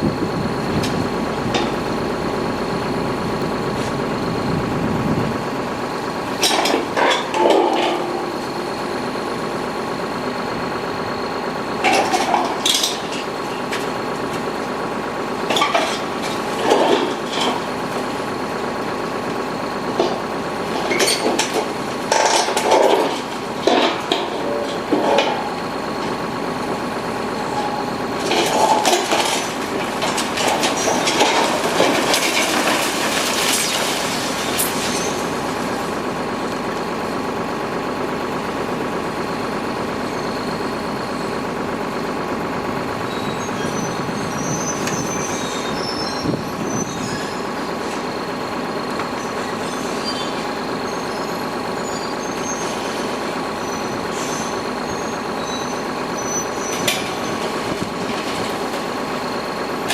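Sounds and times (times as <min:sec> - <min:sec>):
excavator diesel engine running: 0:00.0 - 0:59.9
concrete and debris crashing: 0:28.2 - 0:35.2
high squeaks: 0:43.1 - 0:47.5.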